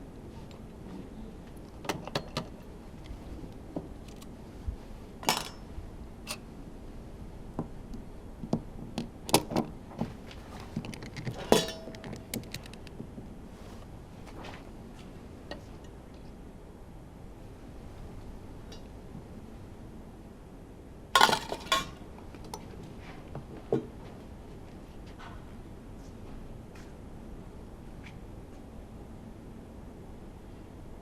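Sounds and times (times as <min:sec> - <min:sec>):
metallic clinks and knocks: 0:05.2 - 0:05.6, 0:11.1 - 0:12.8.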